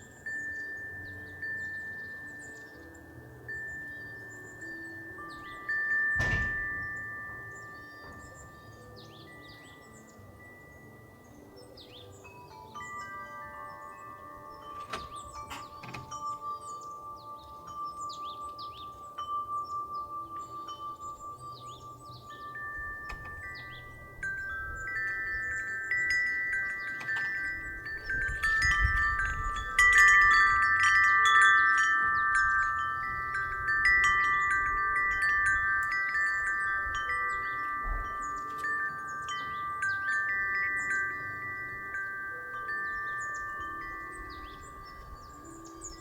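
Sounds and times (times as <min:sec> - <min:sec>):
wind chime ringing: 0:00.0 - 0:46.0
wind rumble on microphone: 0:05.2 - 0:08.5, 0:19.6 - 0:41.0.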